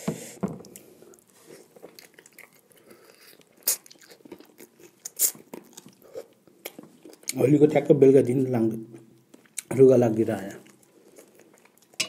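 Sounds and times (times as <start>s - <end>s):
person chewing food: 0.6s - 7.4s, 8.9s - 9.7s, 10.6s - 12.0s.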